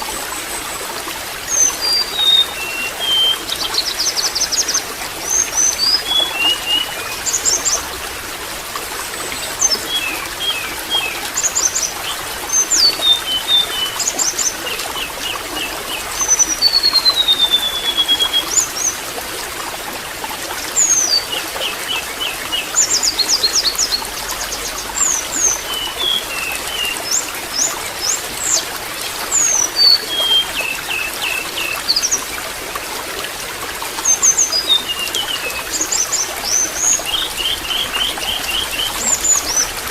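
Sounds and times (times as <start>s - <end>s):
water trickling: 0.0s - 39.9s
small birds chirping: 1.4s - 8.1s, 20.6s - 32.4s, 34.0s - 39.9s.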